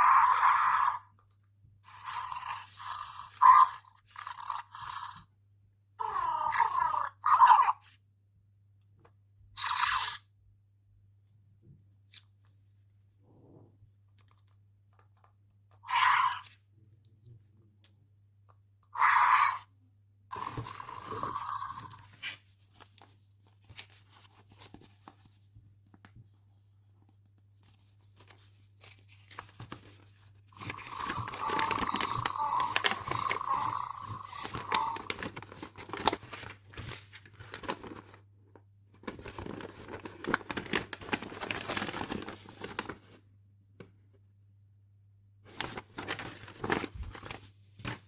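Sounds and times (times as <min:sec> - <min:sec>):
plastic packaging crinkling: 0:27.6 - 0:38.2, 0:38.9 - 0:43.2, 0:45.5 - 0:48.0.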